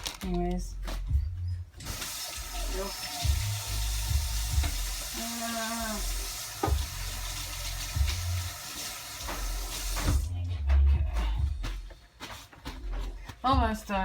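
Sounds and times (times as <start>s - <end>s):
kitchen tap running into sink: 1.8s - 10.3s.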